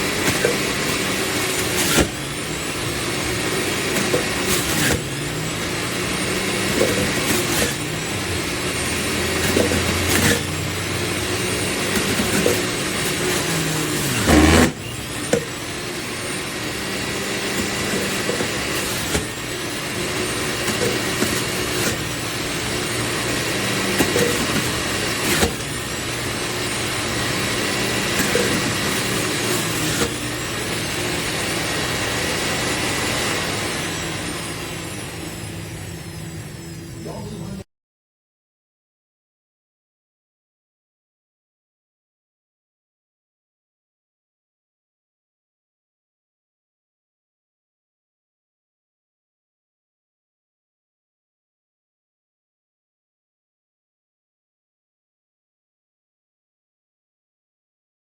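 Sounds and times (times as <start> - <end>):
produce thumping in juicer: 0.0 - 35.0
electric juicer motor running: 0.0 - 37.5.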